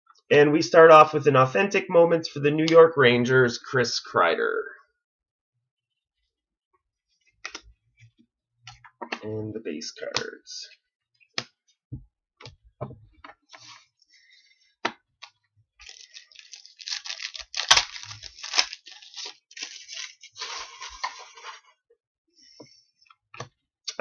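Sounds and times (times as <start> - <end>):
plastic wrapper crinkling and tearing: 15.8 - 21.6.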